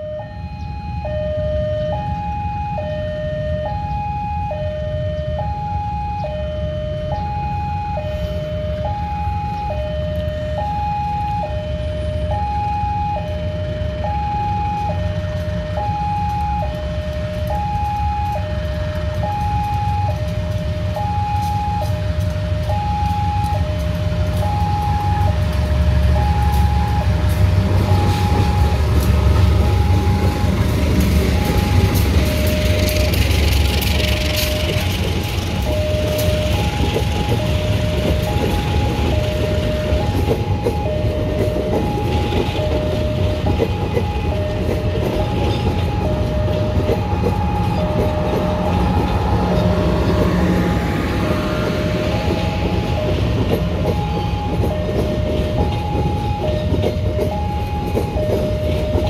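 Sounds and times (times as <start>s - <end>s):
diesel locomotives rumbling: 0.0s - 59.0s
two-tone electronic warning alarm: 0.0s - 59.0s
train wheels clattering on rails: 14.7s - 59.0s.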